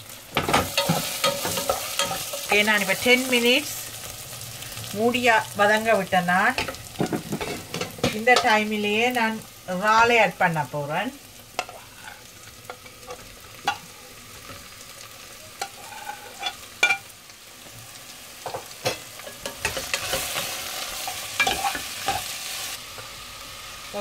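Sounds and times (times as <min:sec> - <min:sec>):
food sizzling in pot: 0:00.0 - 0:24.0
spatula stirring: 0:00.5 - 0:02.6.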